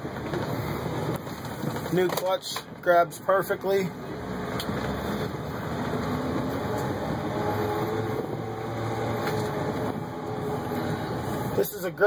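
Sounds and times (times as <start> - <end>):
truck engine driving slowly: 0.0 - 12.0.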